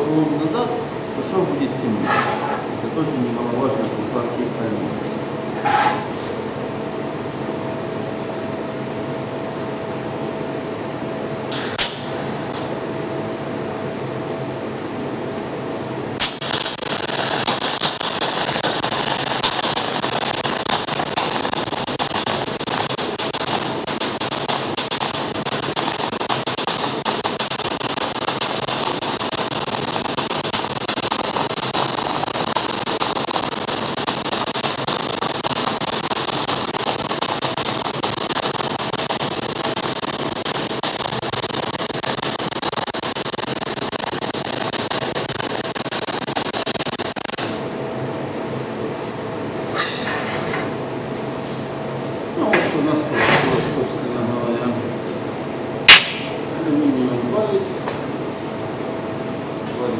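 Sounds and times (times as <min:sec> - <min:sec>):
welding arc crackling hiss: 0:11.5 - 0:12.6, 0:16.2 - 0:47.6.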